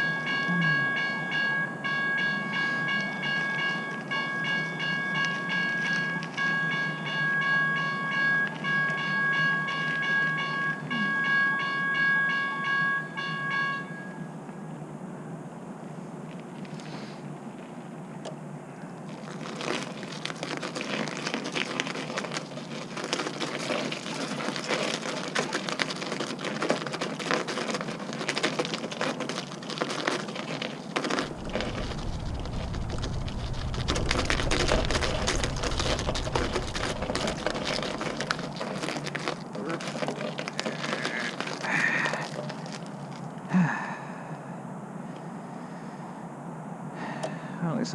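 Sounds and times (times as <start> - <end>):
crunching of frozen snow: 19.0 - 44.0
low rumble: 31.2 - 40.0.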